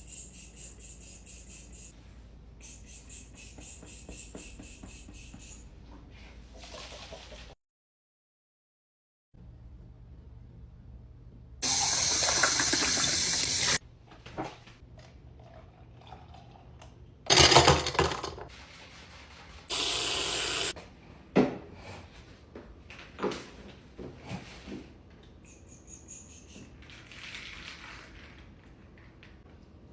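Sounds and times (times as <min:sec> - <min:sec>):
water running from a tap: 0:11.6 - 0:13.8, 0:19.7 - 0:20.7.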